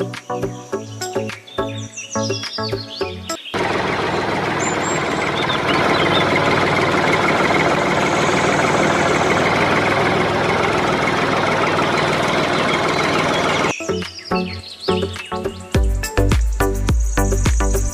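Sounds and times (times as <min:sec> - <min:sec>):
motor running with fast chatter: 0:03.6 - 0:13.7.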